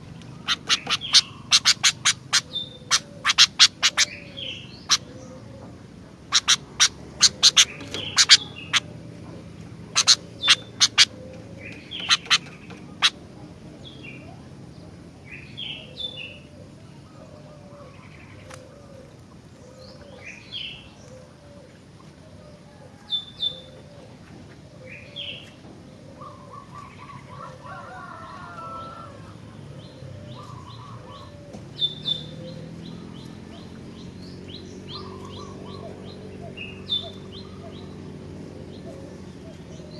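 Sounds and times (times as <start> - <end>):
bird rapid trill: 0.0 - 5.4, 6.2 - 9.1, 9.8 - 11.2, 11.8 - 13.2
soft low bird call: 0.0 - 14.6, 15.3 - 39.9
bird sharp calls and chirps: 0.0 - 39.9.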